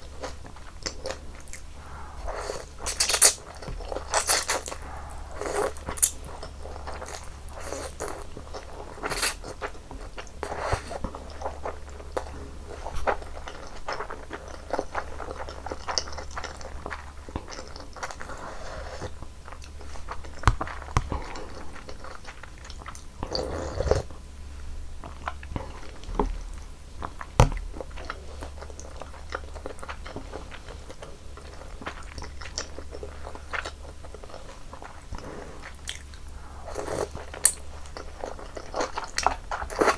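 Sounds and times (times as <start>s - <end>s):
chewing and mouth noises: 0.0s - 24.2s, 25.0s - 39.9s.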